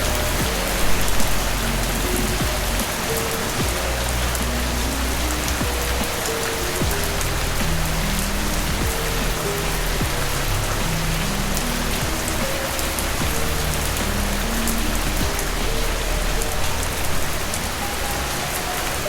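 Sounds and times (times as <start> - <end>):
drops ticking: 0.0 - 19.0
slow background music: 0.0 - 19.0
steady rain hissing: 0.0 - 19.0.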